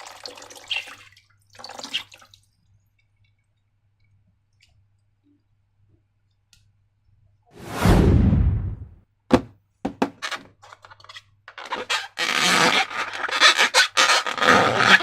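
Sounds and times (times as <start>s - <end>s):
crackly rubbing of balloons and slime: 11.1s - 15.0s.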